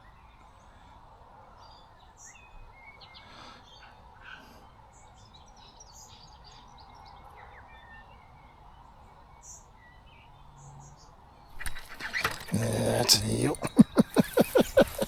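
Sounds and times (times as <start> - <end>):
wild birds chirping: 11.5 - 15.0.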